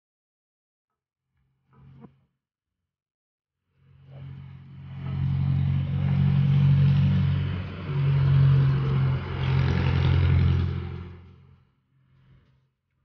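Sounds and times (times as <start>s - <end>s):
vehicle engine running: 3.8s - 12.4s.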